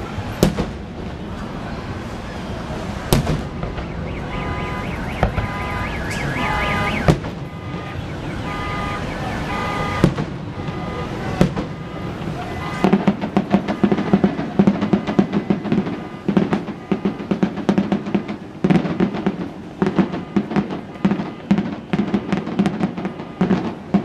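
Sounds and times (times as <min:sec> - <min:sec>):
fireworks bangs: 0:00.0 - 0:24.0
car alarm tones: 0:03.5 - 0:17.5, 0:19.9 - 0:24.0.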